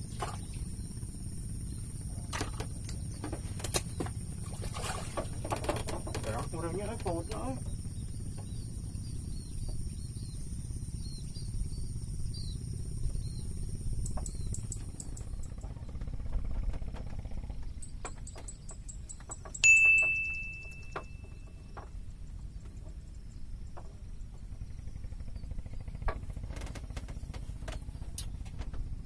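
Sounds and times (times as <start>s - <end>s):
small birds chirping: 0.0s - 5.4s, 6.0s - 29.0s
low wind rumble: 0.0s - 29.0s
bright ringing tone: 19.6s - 21.7s.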